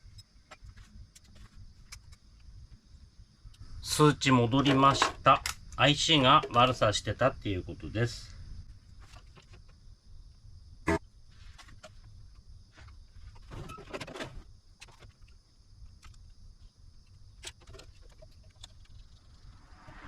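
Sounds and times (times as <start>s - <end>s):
faint high whine: 18.6s - 20.0s.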